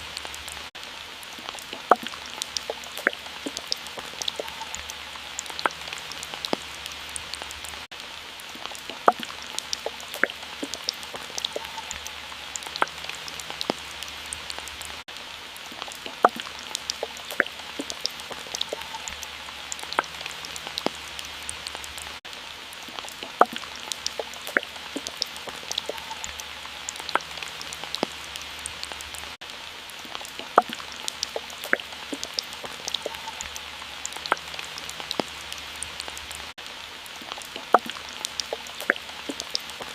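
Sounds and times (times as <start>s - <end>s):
soft hiss of water: 0.0s - 39.9s
water drops plinking: 1.7s - 6.6s, 8.9s - 12.0s, 16.0s - 19.2s, 23.2s - 28.1s, 30.4s - 35.3s, 37.5s - 39.9s.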